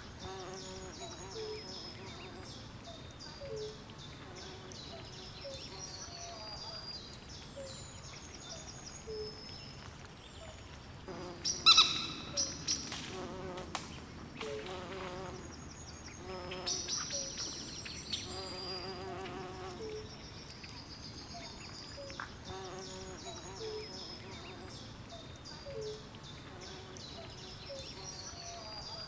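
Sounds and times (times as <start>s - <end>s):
insects calling: 11.2s - 12.9s
frogs calling: 11.6s - 12.6s.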